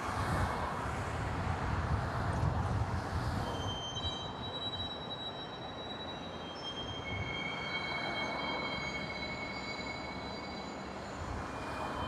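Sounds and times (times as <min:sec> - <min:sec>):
train rumbling on rails: 0:00.0 - 0:12.0
wheels squealing: 0:03.4 - 0:12.0.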